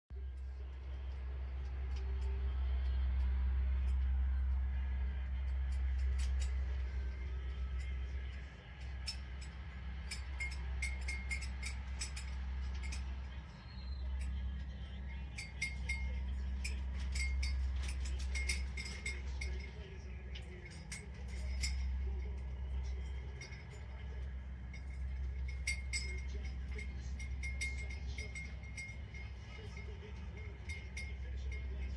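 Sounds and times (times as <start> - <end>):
steady low hum: 0.1 - 31.9
plastic toys clinking and rattling: 5.4 - 31.9.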